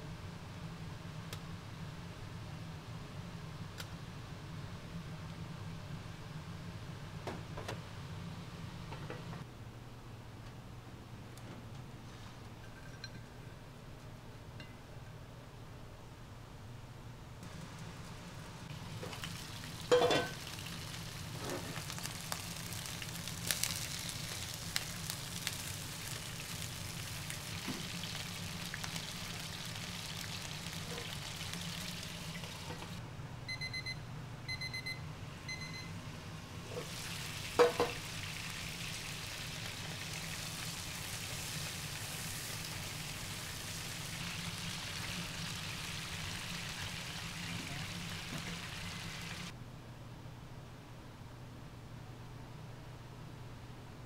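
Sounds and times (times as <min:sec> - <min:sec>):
sausages sizzling: 0:18.8 - 0:33.0, 0:36.7 - 0:49.5.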